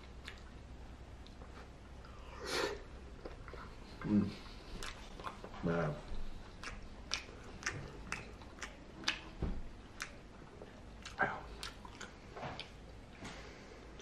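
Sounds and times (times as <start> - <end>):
wet mouth clicks and smacks: 0.0 - 0.6, 4.8 - 5.5, 6.4 - 10.2
person chewing food: 0.0 - 14.0.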